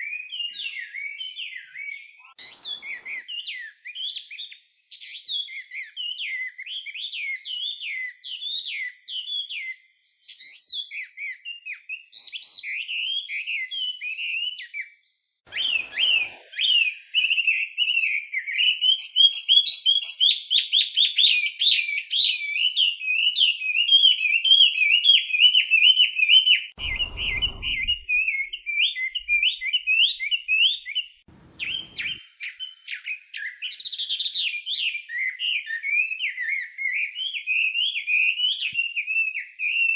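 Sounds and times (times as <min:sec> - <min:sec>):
bird singing whistles and trills: 0:00.0 - 0:39.9
brief low rumble: 0:26.8 - 0:29.7, 0:31.3 - 0:32.2.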